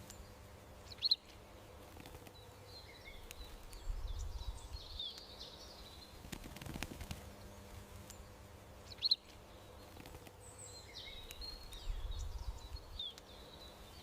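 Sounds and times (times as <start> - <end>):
birds soft twittering: 0.0 - 14.0
faint outdoor background: 0.0 - 14.0
bird sharp chirp: 0.9 - 1.4, 8.9 - 14.0.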